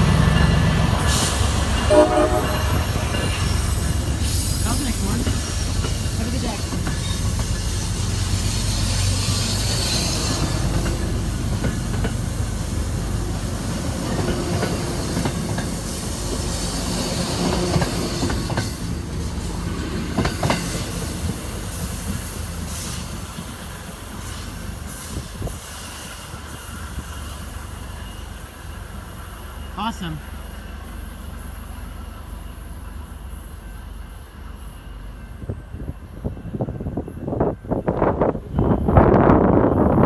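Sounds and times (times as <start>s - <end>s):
train rolling by: 0.0s - 40.0s
wheels clicking over rail joints: 2.5s - 23.5s.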